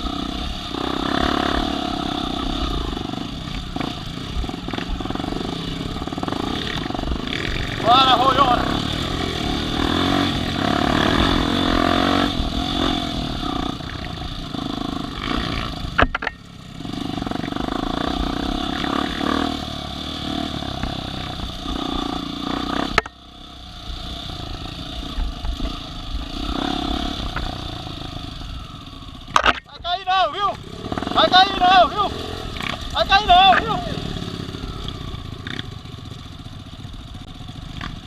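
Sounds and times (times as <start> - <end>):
off-road vehicle engines: 0.0 - 38.0.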